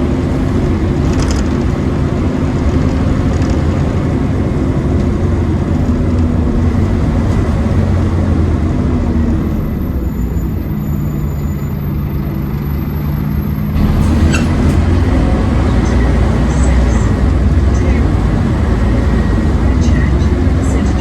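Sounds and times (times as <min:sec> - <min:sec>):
bus engine running: 0:00.0 - 0:21.0.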